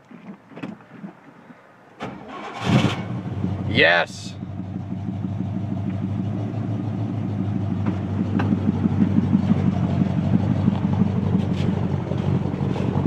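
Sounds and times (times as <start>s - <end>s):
pickup engine idling: 3.1s - 13.0s.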